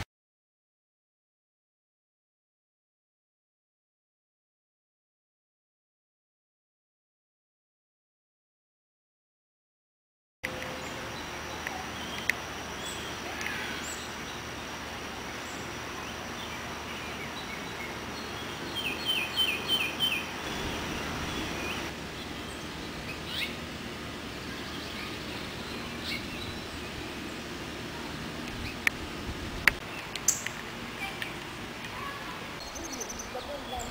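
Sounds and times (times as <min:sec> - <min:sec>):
outdoor background noise: 0:10.4 - 0:33.9
bird chirps: 0:15.4 - 0:23.6, 0:24.4 - 0:27.4, 0:32.6 - 0:33.9.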